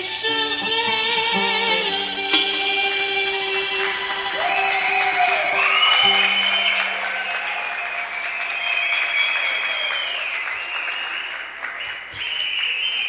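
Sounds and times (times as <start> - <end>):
long high held tones: 0.0 - 9.9
audience applauding: 3.6 - 13.0.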